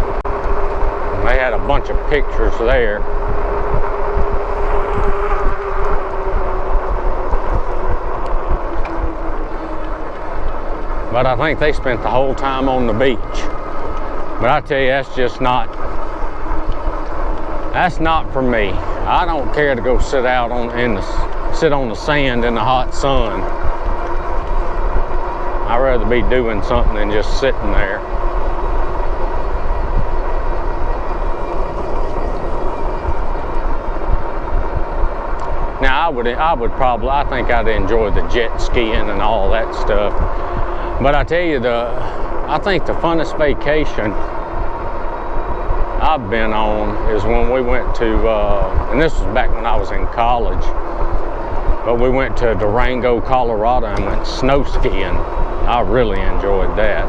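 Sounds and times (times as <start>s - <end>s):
electric motor whine: 0.0s - 57.0s
wind rumbling on microphone: 0.0s - 57.0s.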